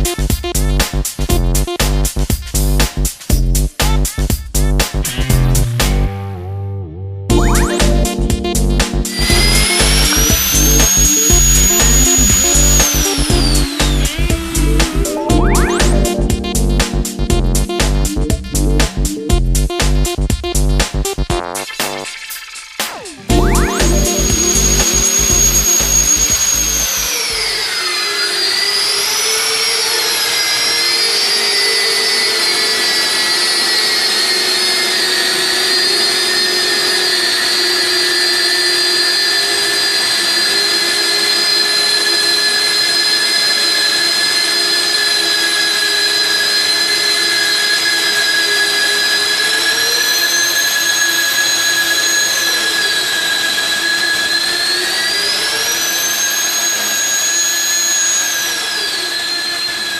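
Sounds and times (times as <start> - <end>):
drill motor high whine: 8.9 - 19.3, 23.2 - 59.9.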